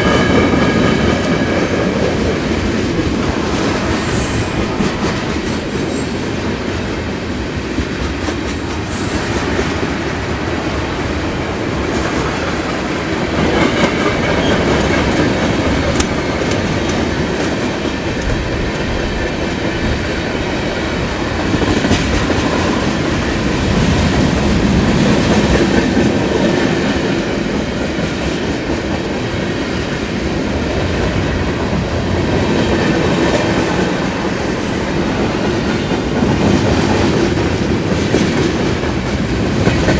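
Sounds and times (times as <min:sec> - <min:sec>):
train wheel squeal: 0:00.0 - 0:11.4, 0:12.2 - 0:17.4, 0:31.7 - 0:39.9
freight train rolling past: 0:00.0 - 0:39.9.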